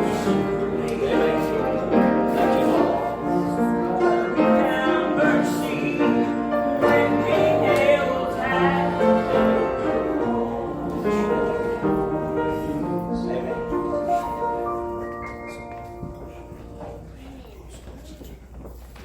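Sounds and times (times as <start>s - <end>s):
person singing: 0.0s - 12.7s
piano accompaniment: 0.0s - 17.3s.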